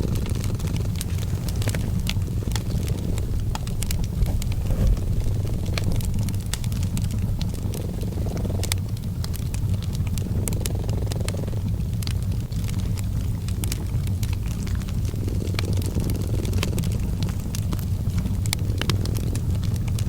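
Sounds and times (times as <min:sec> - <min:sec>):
cat purring: 0:00.0 - 0:20.0
wood fire crackling: 0:00.0 - 0:20.0.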